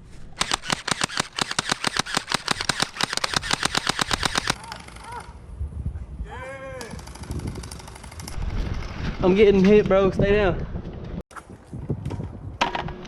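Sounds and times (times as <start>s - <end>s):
gel blaster firing rapid shots: 0.4s - 4.6s.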